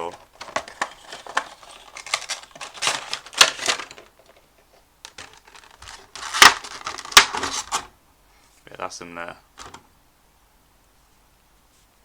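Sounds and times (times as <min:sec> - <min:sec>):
cardboard box crinkling: 0:00.0 - 0:04.5, 0:05.1 - 0:07.9.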